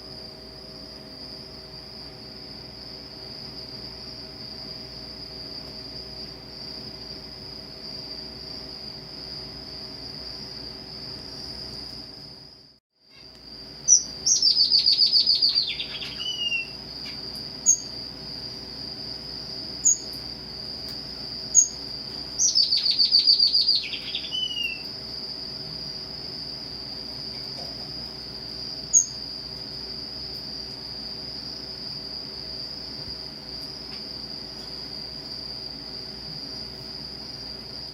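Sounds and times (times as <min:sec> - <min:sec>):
steady high-pitched whine: 0:00.0 - 0:37.9
short high bird chirps: 0:13.9 - 0:16.8, 0:22.4 - 0:24.8.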